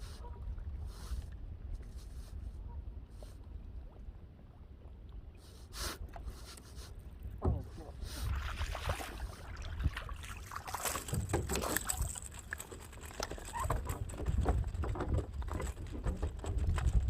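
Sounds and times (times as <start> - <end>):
paddle strokes in water: 5.2 - 17.0
wind rumble on microphone: 7.1 - 17.0
water splashing and dripping: 8.3 - 17.0.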